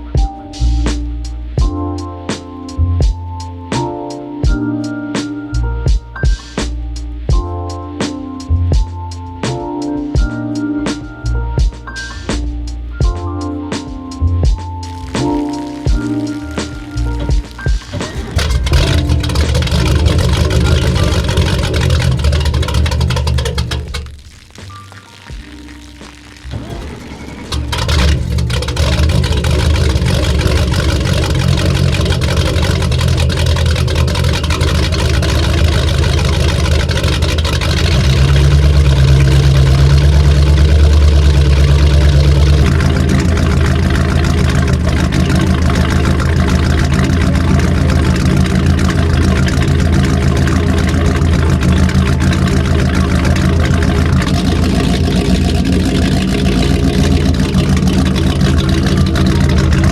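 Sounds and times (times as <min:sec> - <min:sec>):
boat engine running: 0:15.9 - 0:24.2, 0:26.5 - 0:59.9.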